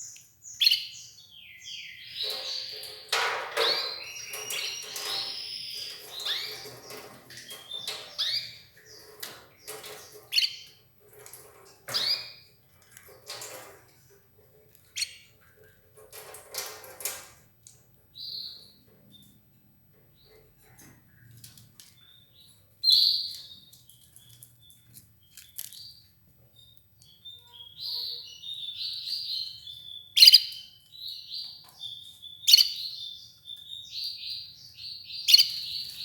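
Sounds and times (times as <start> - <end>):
canary chirping: 0.0 - 17.2, 18.1 - 36.0.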